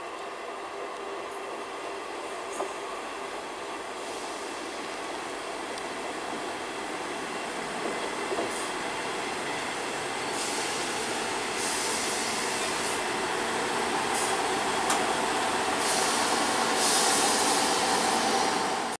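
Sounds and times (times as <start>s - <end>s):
diesel train engine and wheels: 0.0s - 19.0s
high hiss: 10.2s - 19.0s.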